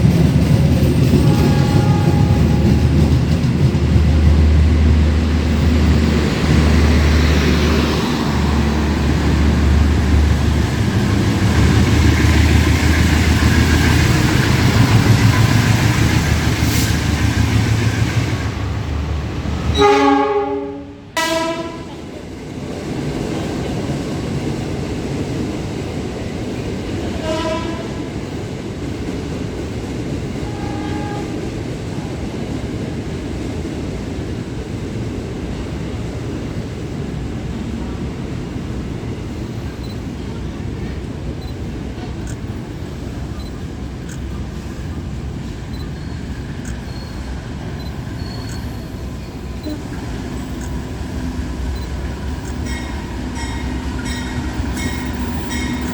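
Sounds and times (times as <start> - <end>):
train rumble and rail clatter: 0.0 - 55.9
train horn blasting: 1.2 - 3.1, 19.7 - 22.0, 27.2 - 28.1, 30.4 - 31.4, 49.6 - 50.2.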